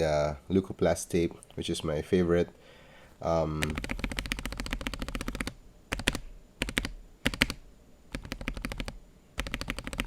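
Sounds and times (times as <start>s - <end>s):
mechanical keyboard typing: 3.6s - 10.0s.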